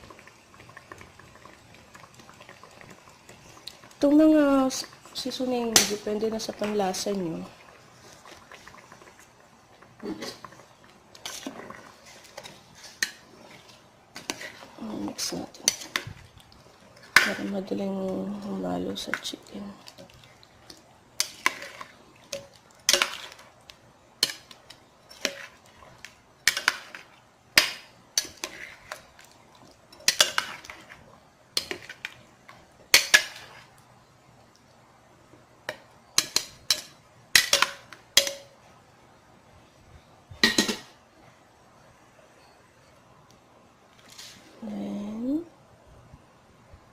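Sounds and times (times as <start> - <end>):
spoon knocking and scraping pot: 21.2 - 23.4, 24.2 - 25.6, 32.9 - 33.6, 35.7 - 38.6, 40.4 - 40.9.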